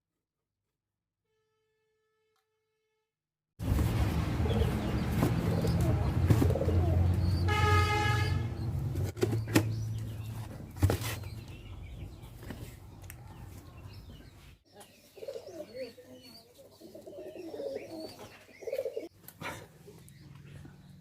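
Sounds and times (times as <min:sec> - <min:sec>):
pigeons cooing: 0:04.3 - 0:08.6, 0:15.1 - 0:19.1.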